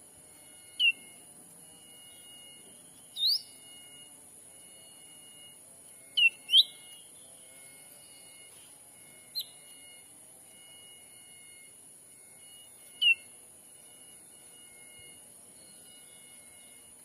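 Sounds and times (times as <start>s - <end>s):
forest insects droning: 0.0s - 17.0s
sharp bird chirps: 0.6s - 4.2s, 4.8s - 7.4s, 8.0s - 10.1s, 12.4s - 13.4s.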